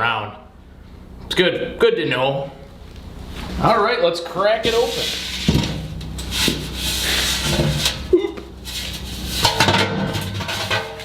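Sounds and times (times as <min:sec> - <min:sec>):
metal scraping and rubbing: 0:04.6 - 0:11.0
sharp metal knocks and clanks: 0:09.4 - 0:11.0.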